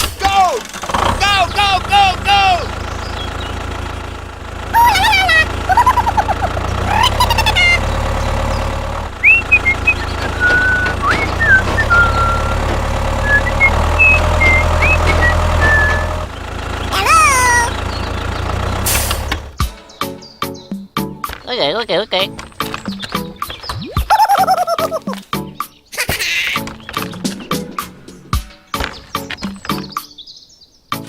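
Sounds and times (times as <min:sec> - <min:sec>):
engine humming: 0:00.0 - 0:31.0
squeaky rising and falling glides: 0:00.8 - 0:19.6, 0:21.4 - 0:25.3
whistled chirps: 0:09.2 - 0:16.3.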